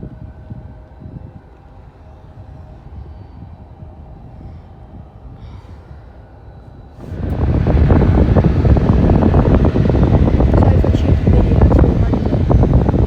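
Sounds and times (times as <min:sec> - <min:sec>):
wind buffeting microphone: 0:00.0 - 0:13.0
distant jet engines rumbling: 0:07.0 - 0:13.0.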